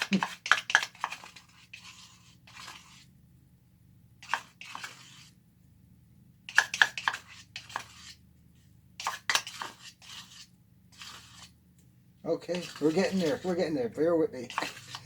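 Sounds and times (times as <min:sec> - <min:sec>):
palette knife scraping cement: 0:00.0 - 0:03.2, 0:04.2 - 0:05.4, 0:06.5 - 0:08.3, 0:09.0 - 0:11.6, 0:12.3 - 0:15.0.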